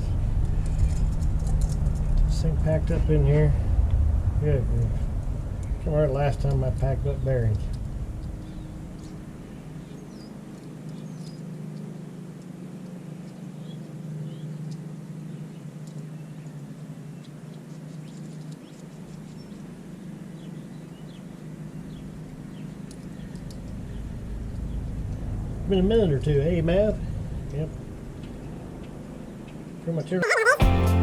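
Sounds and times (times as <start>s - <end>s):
high bird chirps: 30.2s - 30.6s.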